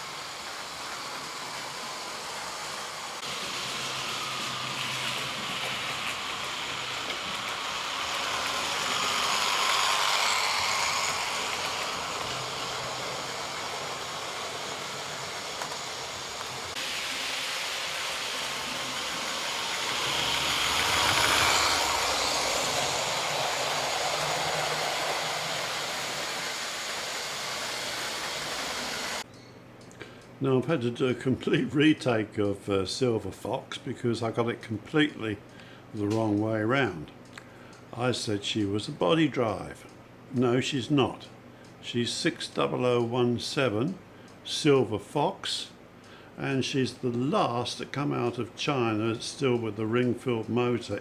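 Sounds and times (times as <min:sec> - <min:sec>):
model train motor whirring: 0:00.0 - 0:29.2.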